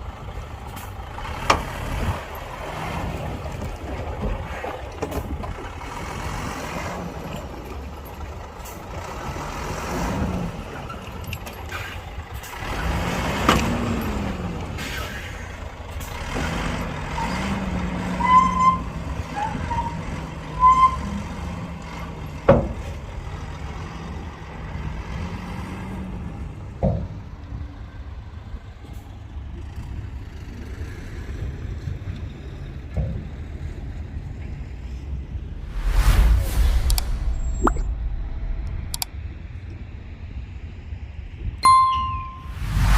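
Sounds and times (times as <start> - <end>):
heavy diesel engines revving: 0.0 - 42.9
short high beeps: 41.6 - 42.9.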